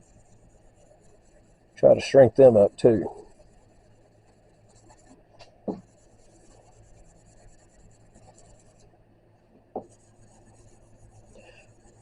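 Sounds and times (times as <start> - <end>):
marker scratching on steel: 0.0 - 9.0, 9.8 - 12.0
soft knock: 5.6 - 5.9, 9.7 - 10.0.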